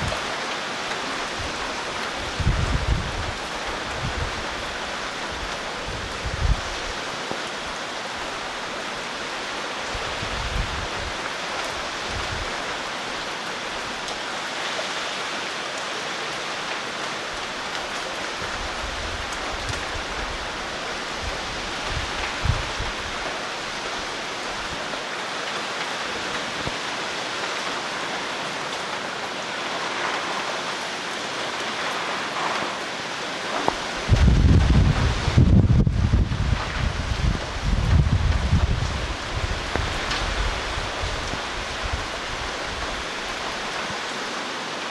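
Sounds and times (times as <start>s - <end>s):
wind gusts buffeting microphone: 0.0s - 0.5s, 1.2s - 13.0s, 18.3s - 24.9s, 31.8s - 44.1s
heavy rain hiss: 0.0s - 44.9s.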